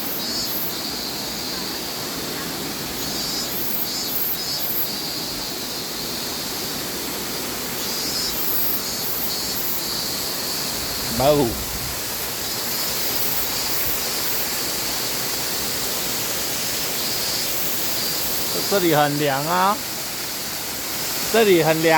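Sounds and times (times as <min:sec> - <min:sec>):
waterfall rushing: 0:05.3 - 0:21.9
higher hiss: 0:06.0 - 0:21.9.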